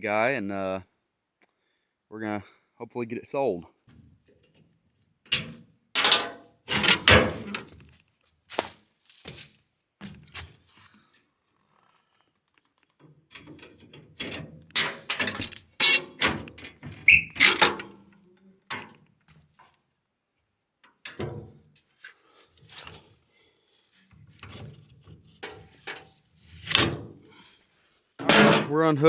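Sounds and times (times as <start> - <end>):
metal clanks and knocks: 5.3 - 7.7, 13.3 - 18.0, 18.7 - 19.0, 21.1 - 21.6, 24.4 - 27.2, 28.2 - 28.8
short squeak: 17.0 - 17.6, 26.6 - 27.2.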